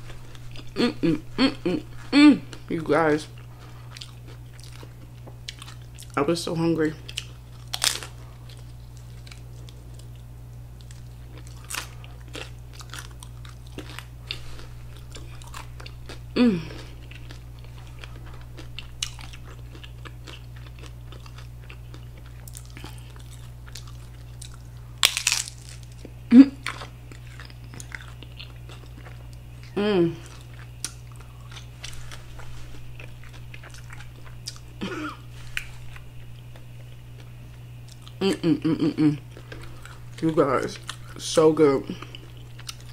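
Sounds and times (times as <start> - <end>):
crunching and chewing taco: 0.0 - 42.9
low background hum: 0.0 - 42.9
person humming: 0.6 - 3.0, 16.3 - 16.9, 26.3 - 26.6, 29.7 - 30.3, 38.2 - 39.3.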